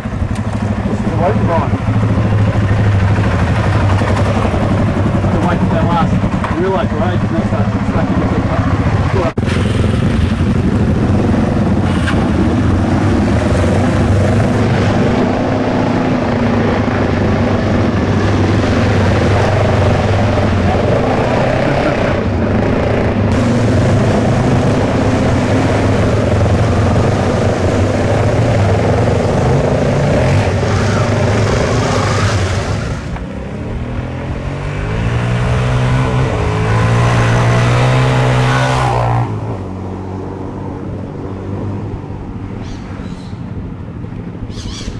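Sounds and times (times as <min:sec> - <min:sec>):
dirt bike engine accelerating: 0:00.0 - 0:42.0.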